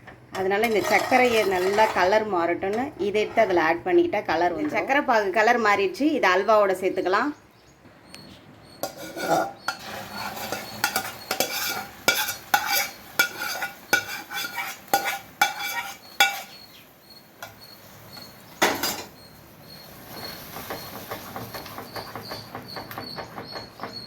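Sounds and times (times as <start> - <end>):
metal spoon scraping metal pan: 0.4 - 3.6, 8.8 - 16.7.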